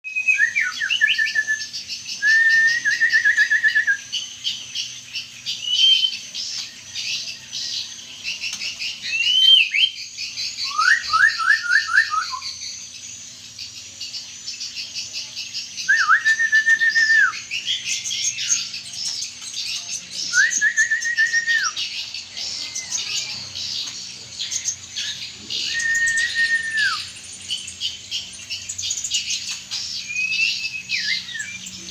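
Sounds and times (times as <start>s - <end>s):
bird whistled phrase: 0.0s - 4.2s, 9.0s - 12.6s, 15.8s - 18.6s, 20.2s - 23.4s, 25.0s - 27.2s, 30.0s - 31.9s
songbirds twittering: 0.0s - 31.9s.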